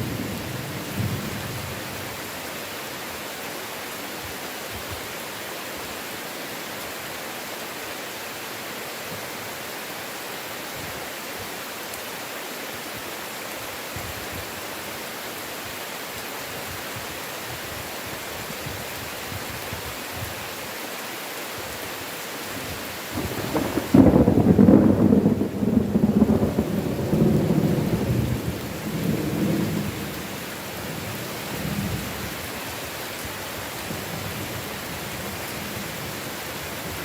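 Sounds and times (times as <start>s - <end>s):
heavy rain hissing: 0.0s - 37.0s
low thunder rumble: 23.2s - 30.2s.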